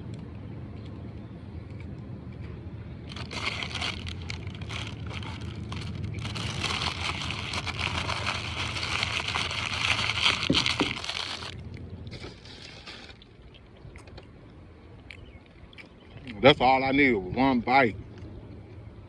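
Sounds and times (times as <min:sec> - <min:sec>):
steady low hum: 0:00.0 - 0:19.0
paper wrapper crinkling: 0:03.1 - 0:11.6.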